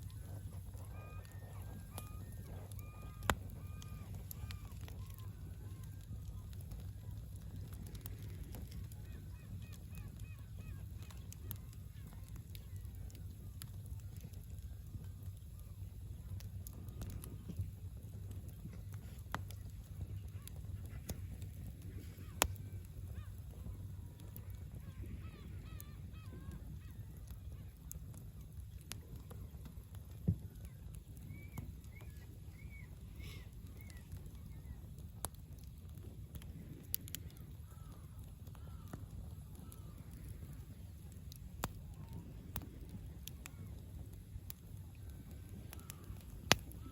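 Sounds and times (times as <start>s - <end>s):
campfire crackling and popping: 0.0s - 46.9s
low steady rumble: 0.0s - 46.9s.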